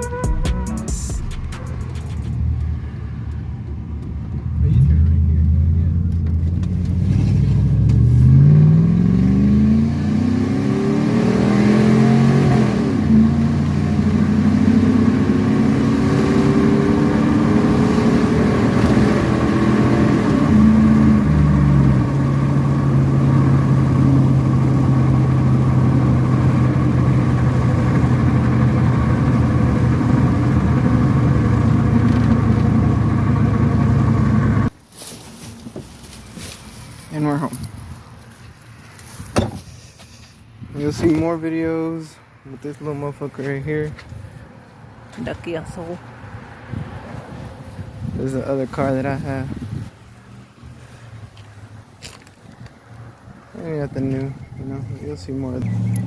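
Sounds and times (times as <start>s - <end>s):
truck engine accelerating: 0.0s - 34.8s, 53.6s - 56.0s.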